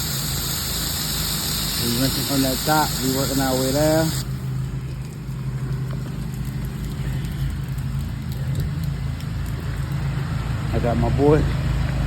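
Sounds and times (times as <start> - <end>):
pressure washer engine running: 0.0 - 7.3.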